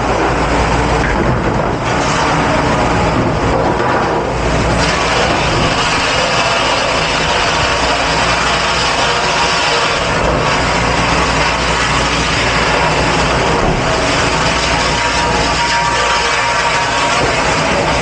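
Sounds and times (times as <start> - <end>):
dishwashing machinery: 0.0 - 18.0
spraying water: 4.4 - 18.0.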